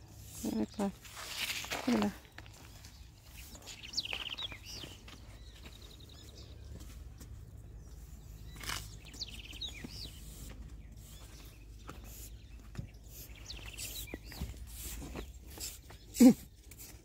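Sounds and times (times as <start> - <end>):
rake scraping: 0.0 - 5.1, 8.4 - 12.4, 13.0 - 15.9
songbird singing: 0.0 - 17.0
steady low rumble: 2.2 - 15.6.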